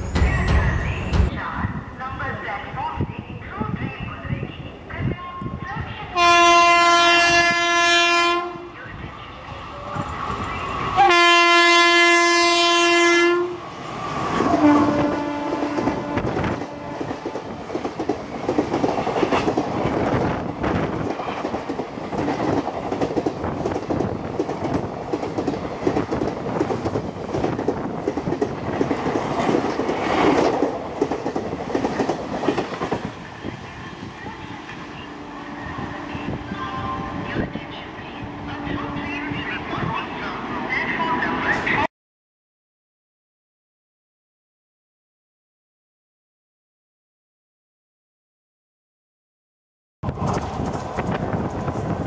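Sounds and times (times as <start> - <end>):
locomotive horn blasts: 6.2 - 8.7, 11.0 - 13.6, 14.6 - 17.0
train wheels clickety-clack: 15.7 - 33.1, 50.0 - 52.0.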